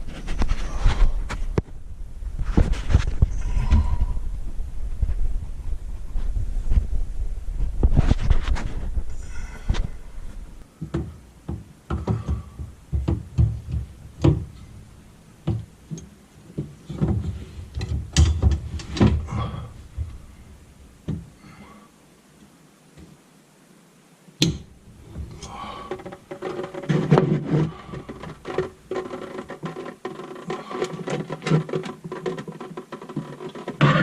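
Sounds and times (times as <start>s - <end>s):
knocks and clunks of hand work: 10.8s - 14.8s, 15.4s - 20.2s, 21.0s - 21.4s, 24.4s - 34.0s.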